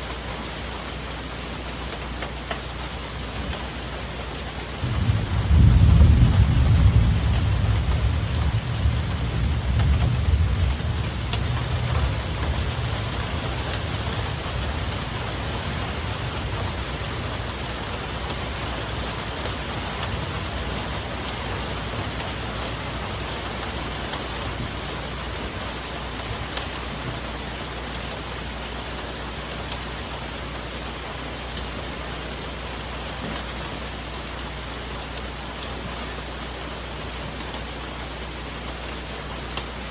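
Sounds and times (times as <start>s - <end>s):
rain on foliage: 0.0s - 39.9s
thunder rolling: 4.8s - 17.6s.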